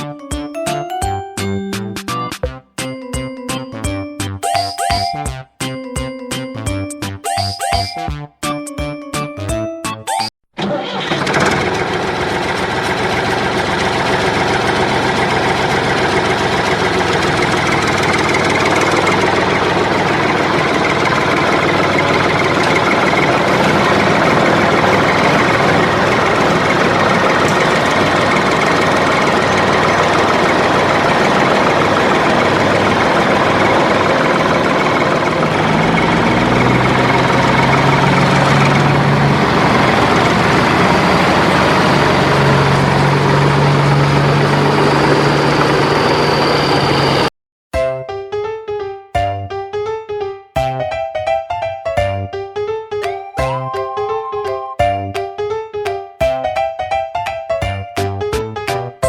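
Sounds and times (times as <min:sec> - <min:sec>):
vehicle engine running: 0:10.9 - 0:47.3.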